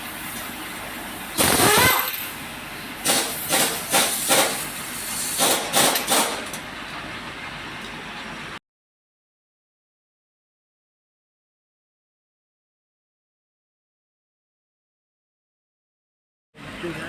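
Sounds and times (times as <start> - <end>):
compressed-air tool hissing: 1.4 - 2.2, 3.0 - 6.3.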